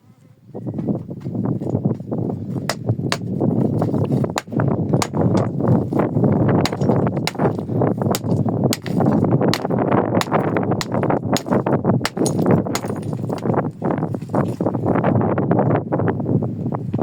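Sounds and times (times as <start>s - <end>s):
crunching and scraping of rocks: 0.8s - 15.0s
stone knocking on stone: 2.7s - 6.0s, 6.6s - 13.6s.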